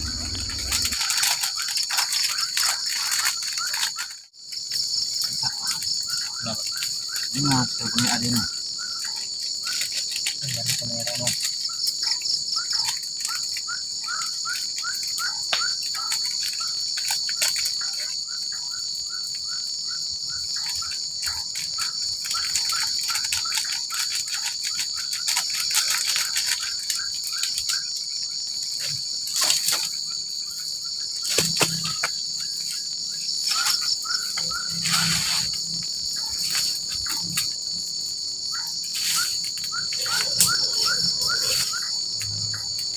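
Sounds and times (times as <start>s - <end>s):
crickets trilling: 0.0s - 42.9s
scattered clicks and knocks: 31.2s - 32.8s.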